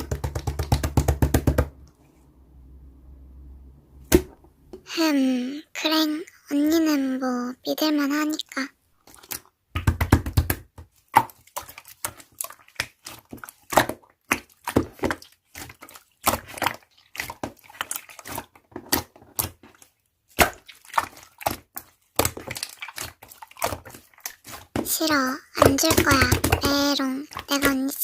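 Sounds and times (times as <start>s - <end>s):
slime squishing with crackling pops: 9.0s - 28.0s.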